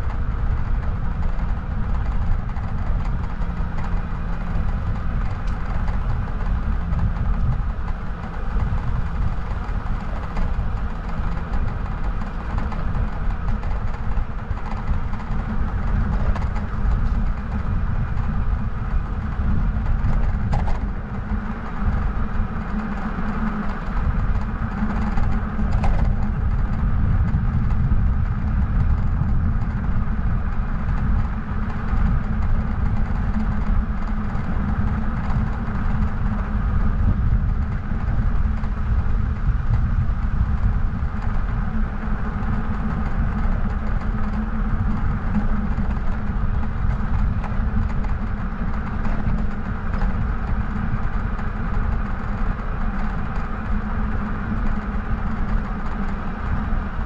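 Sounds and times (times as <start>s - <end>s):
bike rolling noise: 0.0s - 57.0s
wind rumble on microphone: 0.0s - 57.0s.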